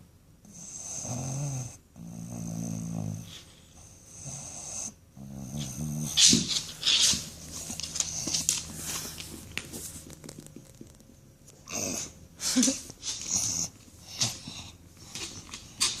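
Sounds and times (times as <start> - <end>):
dog snoring and wheezing: 0.4 - 6.2, 11.6 - 12.2.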